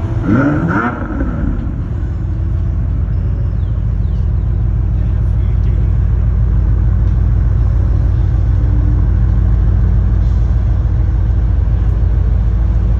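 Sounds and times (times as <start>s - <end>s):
car driving low rumble: 0.0s - 12.9s.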